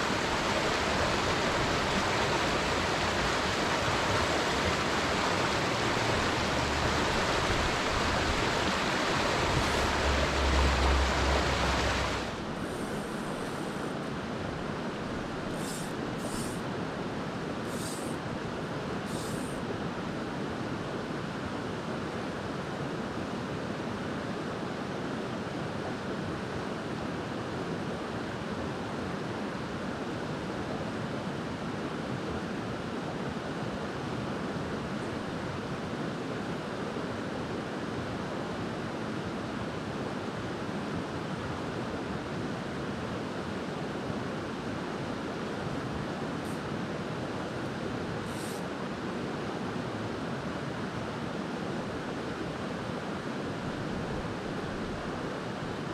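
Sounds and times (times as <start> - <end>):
creek water flowing: 0.0 - 19.7.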